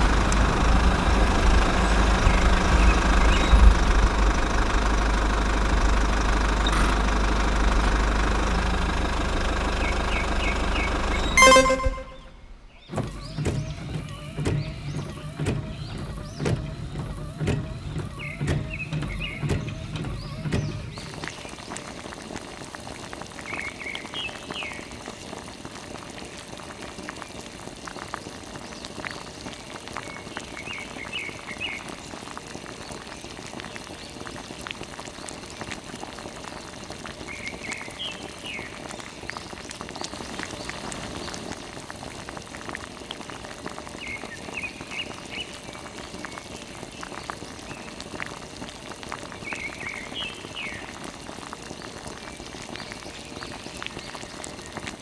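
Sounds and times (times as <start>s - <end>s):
water spattering and splashing: 0.0s - 11.3s, 20.9s - 55.0s
short high chirping call: 9.9s - 12.6s.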